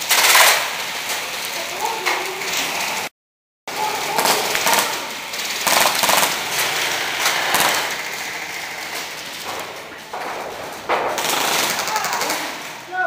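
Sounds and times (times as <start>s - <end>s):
airsoft guns firing bursts: 0.0s - 1.0s, 3.7s - 13.0s
steady noisy background: 3.7s - 13.0s.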